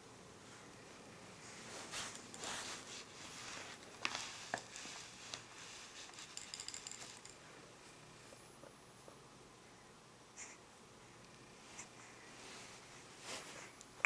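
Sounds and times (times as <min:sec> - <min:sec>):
rustling and scuffing: 0:01.4 - 0:06.3, 0:12.4 - 0:13.8.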